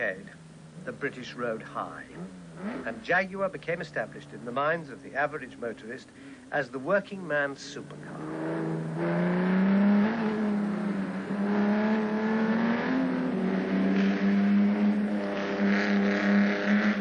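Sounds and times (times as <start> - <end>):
sports car engine running hard: 0.0 - 17.0.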